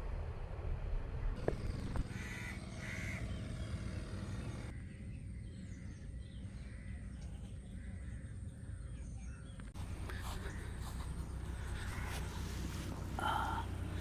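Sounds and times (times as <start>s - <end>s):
steady low rumble: 0.0s - 14.0s
bird calling: 1.4s - 14.0s.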